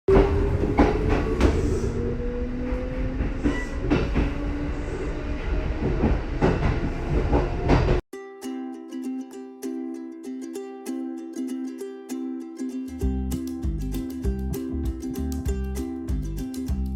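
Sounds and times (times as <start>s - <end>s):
wheels clacking over rail joints: 0.1s - 1.9s
train rumble: 0.1s - 8.0s.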